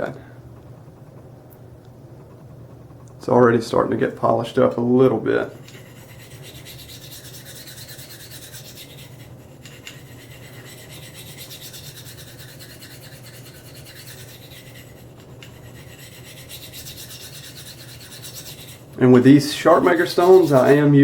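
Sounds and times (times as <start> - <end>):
knife scraping on ceramic stone: 5.5 - 19.0, 19.7 - 20.9.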